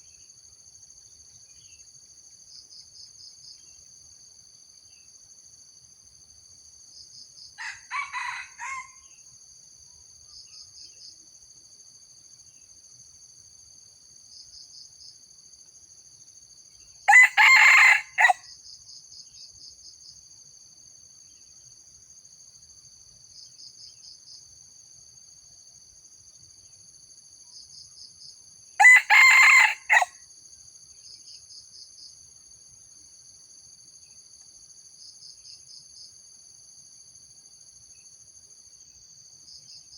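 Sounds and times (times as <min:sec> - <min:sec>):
crickets trilling: 0:00.0 - 0:39.9
rooster crowing: 0:07.6 - 0:09.1, 0:17.1 - 0:18.4, 0:28.8 - 0:30.2.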